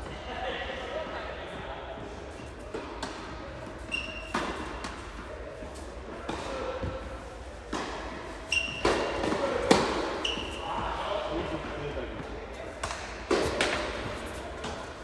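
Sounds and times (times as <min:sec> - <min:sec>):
tennis ball struck by racquet: 0:08.8 - 0:10.4.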